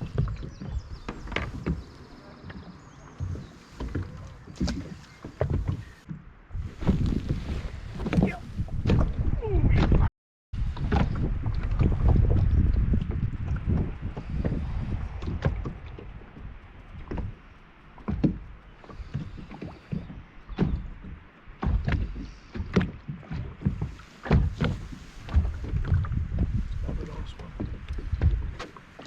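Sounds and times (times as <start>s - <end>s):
knocks on plastic boat: 21.6s - 28.7s.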